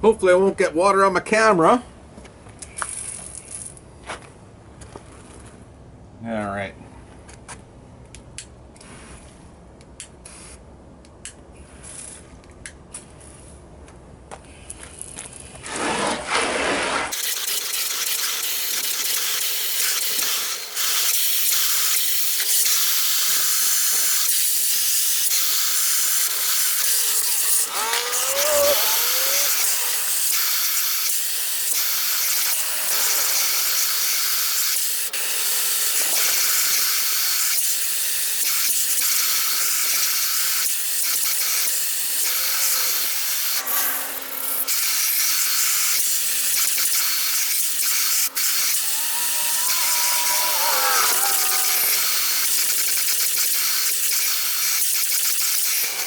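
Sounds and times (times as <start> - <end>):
wavering squeak: 26.8 - 30.1, 48.6 - 52.1.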